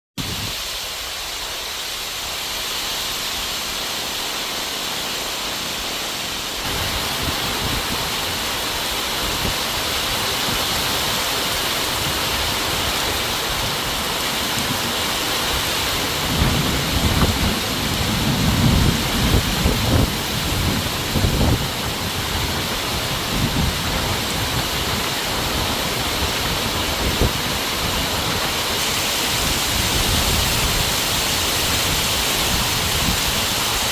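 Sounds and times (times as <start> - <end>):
heavy rain pouring: 0.2 - 33.9
low thunder rumbles: 16.0 - 27.4.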